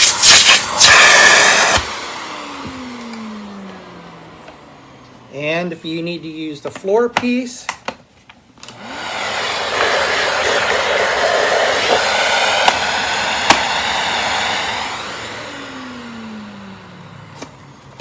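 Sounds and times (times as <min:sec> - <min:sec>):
vacuum cleaner motor running: 0:00.0 - 0:05.3, 0:08.6 - 0:18.0.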